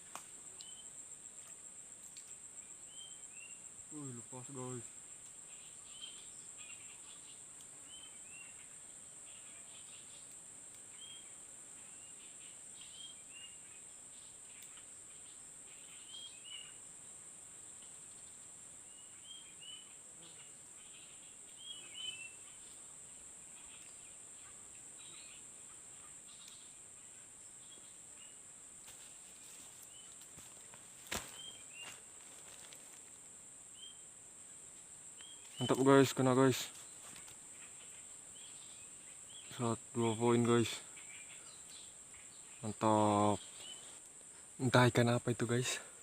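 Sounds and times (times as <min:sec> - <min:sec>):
insect drone: 0:00.0 - 0:46.0
bird chirps: 0:09.3 - 0:16.8, 0:18.9 - 0:22.8, 0:31.2 - 0:32.0, 0:35.2 - 0:44.0.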